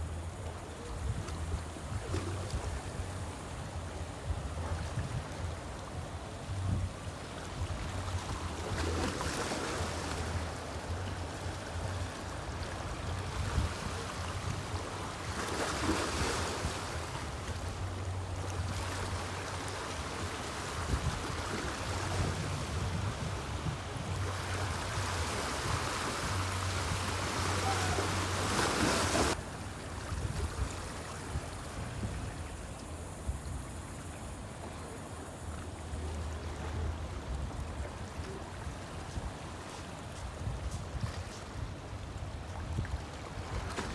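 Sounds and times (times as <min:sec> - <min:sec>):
river water washing: 0:00.0 - 0:43.9
wind gusting over microphone: 0:00.8 - 0:29.4, 0:30.0 - 0:34.4.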